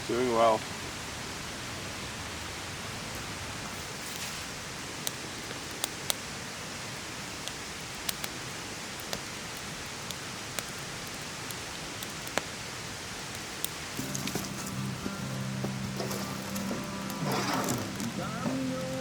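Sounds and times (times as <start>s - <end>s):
rain hiss: 0.0s - 19.0s
sharp irregular ticks: 7.4s - 12.5s.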